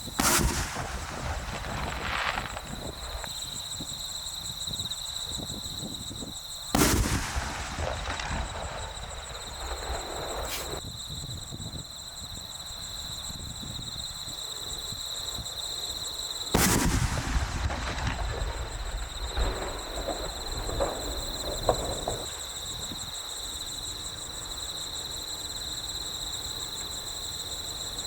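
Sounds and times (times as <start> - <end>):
fireworks bangs: 0.0 - 10.9, 16.5 - 23.2
fireworks crackle and rumble: 0.0 - 14.8, 15.4 - 28.0.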